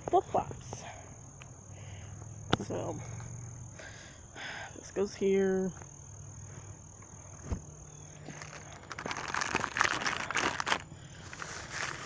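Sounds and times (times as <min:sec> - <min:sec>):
insect trilling: 0:07.1 - 0:12.0
rustling into a backpack: 0:08.2 - 0:12.0.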